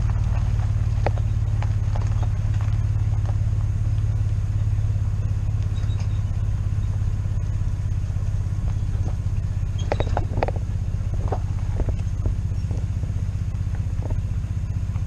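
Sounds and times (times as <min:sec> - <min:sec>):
engine droning: 0:00.0 - 0:15.0
short clanks: 0:08.7 - 0:13.0.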